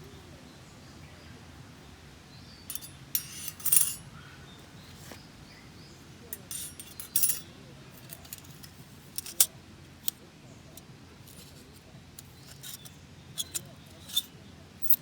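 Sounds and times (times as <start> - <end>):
faint steady background noise: 0.0 - 15.0
small metal pieces clinking: 2.7 - 4.0, 6.4 - 7.4, 8.0 - 9.5, 12.2 - 15.0.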